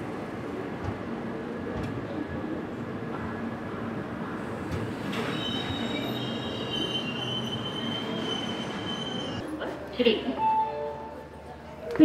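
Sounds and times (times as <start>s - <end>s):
train coaches rumbling: 0.0s - 10.3s
metal wheel squeal: 5.2s - 9.4s.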